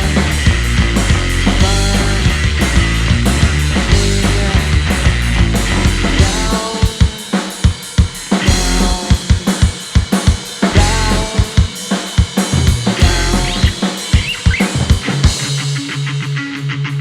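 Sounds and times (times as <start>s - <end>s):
bass guitar: 0.0s - 7.1s, 8.1s - 11.7s, 12.3s - 17.0s
electric guitar: 0.0s - 7.6s, 8.2s - 17.0s
drum kit: 0.0s - 17.0s.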